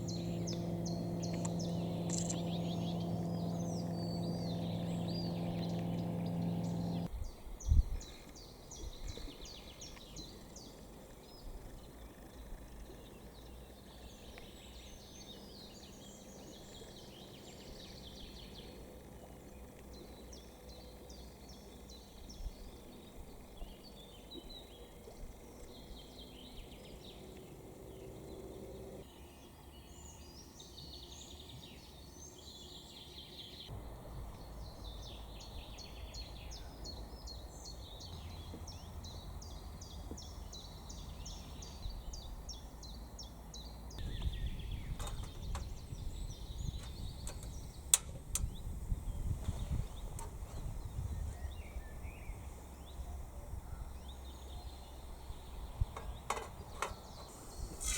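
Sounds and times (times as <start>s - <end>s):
faint low rumble: 0.0s - 8.0s
small birds chirping and trilling: 0.0s - 57.9s.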